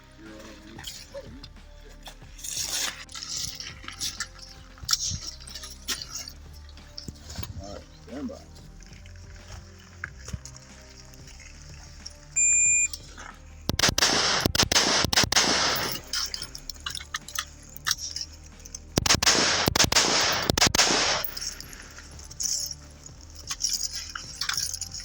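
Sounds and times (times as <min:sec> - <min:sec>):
shot timer beep: 0:12.4 - 0:13.0
rifle shots: 0:13.7 - 0:16.5, 0:19.0 - 0:21.9.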